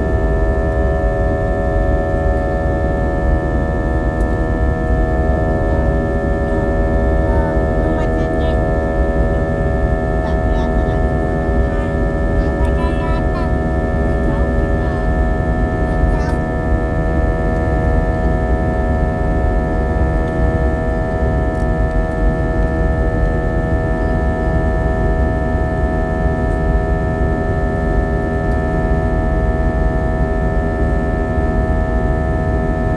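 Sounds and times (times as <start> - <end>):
droning engine hum: 0.0 - 32.9
aircraft cabin rumble: 5.4 - 16.8.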